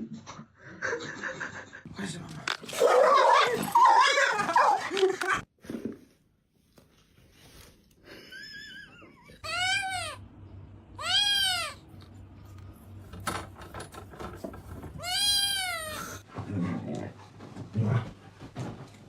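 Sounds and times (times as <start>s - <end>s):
cat meowing: 9.4s - 10.2s, 11.0s - 11.8s, 15.0s - 16.2s.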